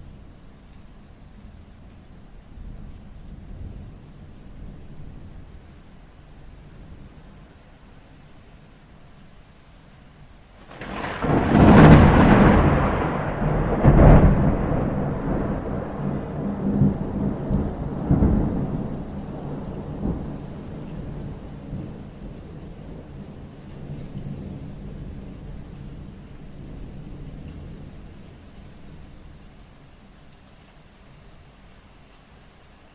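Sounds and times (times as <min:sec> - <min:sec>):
steady rain: 0:00.0 - 0:32.9
thunder cracking and rumbling: 0:10.6 - 0:27.9.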